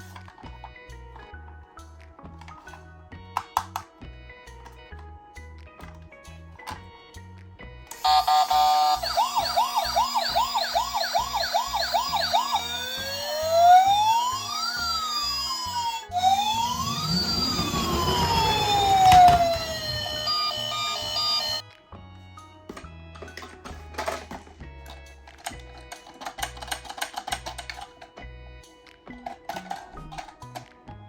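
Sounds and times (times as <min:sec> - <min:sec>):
toy siren wails: 0:07.9 - 0:21.6
toy siren yelp: 0:07.9 - 0:21.6.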